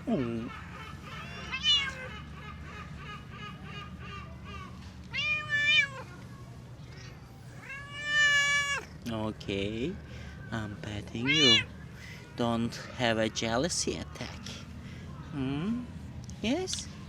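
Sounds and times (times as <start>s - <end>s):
cat meowing: 1.2s - 2.1s, 5.1s - 6.2s, 7.6s - 8.9s, 11.2s - 11.7s.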